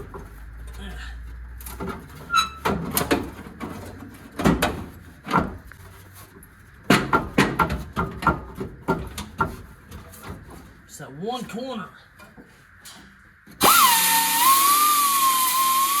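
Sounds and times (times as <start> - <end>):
car body panel banging: 2.6 - 5.6, 6.9 - 9.6.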